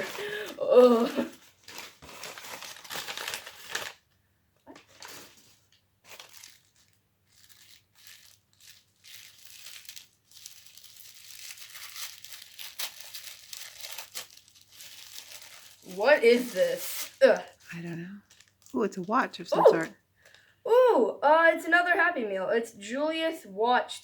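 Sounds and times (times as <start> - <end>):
newspaper crinkling and tearing: 0.0 - 19.1.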